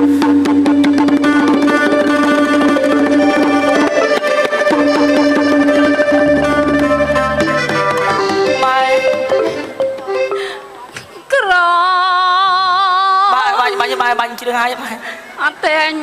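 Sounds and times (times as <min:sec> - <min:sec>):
traditional instrumental music: 0:00.0 - 0:11.3.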